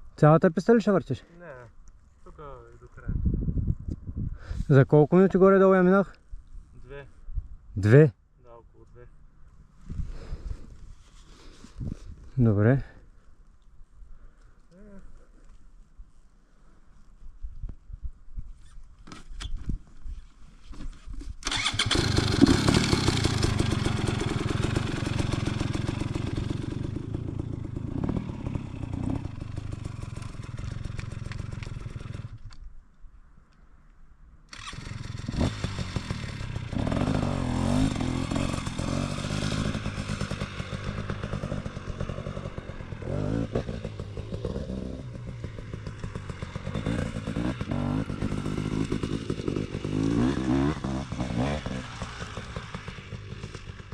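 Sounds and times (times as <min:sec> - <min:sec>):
motorcycle engine revving: 0:21.4 - 0:32.4, 0:34.5 - 0:53.9.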